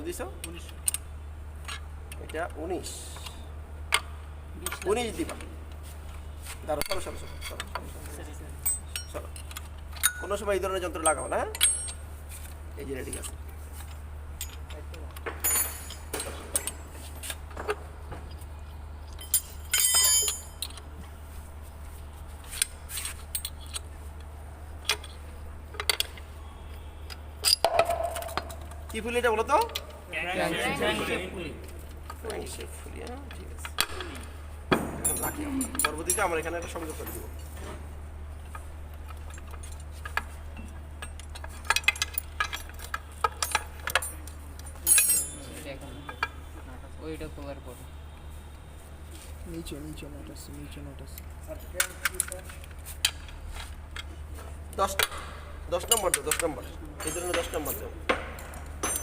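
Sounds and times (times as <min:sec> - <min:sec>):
tools clinking on engine parts: 0:00.1 - 0:05.4, 0:06.7 - 0:21.0, 0:22.4 - 0:30.1, 0:33.2 - 0:37.8, 0:38.4 - 0:46.5, 0:51.0 - 0:54.2, 0:54.8 - 0:59.0
ringing metallic clatter: 0:08.6 - 0:12.1, 0:15.4 - 0:17.0, 0:19.1 - 0:20.8, 0:41.0 - 0:46.4, 0:55.7 - 0:59.0.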